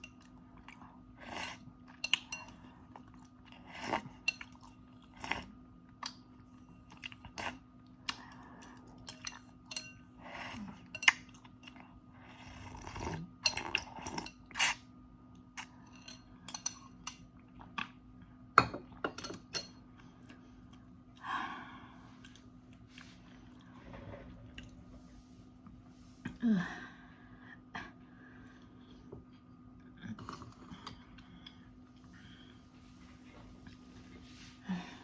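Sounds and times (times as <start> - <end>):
utensils clinking against a bowl: 1.9 - 2.6, 9.1 - 10.1, 10.8 - 11.8, 13.4 - 14.8, 15.6 - 17.2, 18.6 - 19.8.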